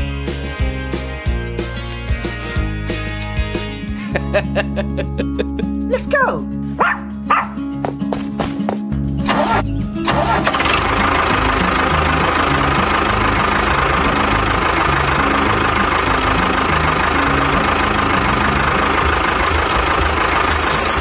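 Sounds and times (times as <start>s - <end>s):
engine running: 6.5s - 21.0s.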